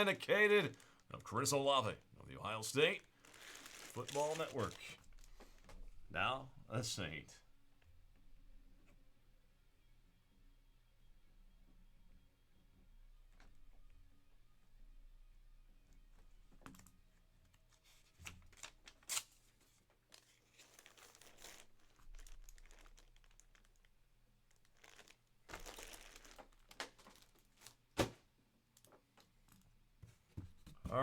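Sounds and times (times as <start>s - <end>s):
plastic packaging crinkling: 0.0s - 1.9s, 2.5s - 5.4s, 20.0s - 28.0s.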